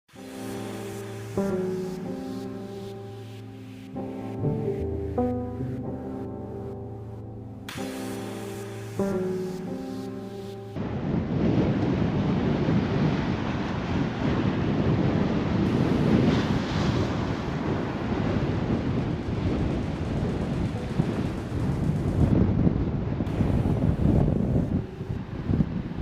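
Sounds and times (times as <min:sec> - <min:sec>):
ocean surf breaking: 0:00.1 - 0:26.0
strong wind buffeting microphone: 0:10.8 - 0:26.0.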